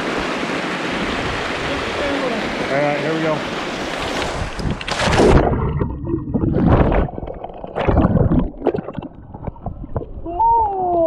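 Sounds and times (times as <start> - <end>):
water churning and slapping: 0.0 - 10.2
loud splash into pool: 3.9 - 5.8.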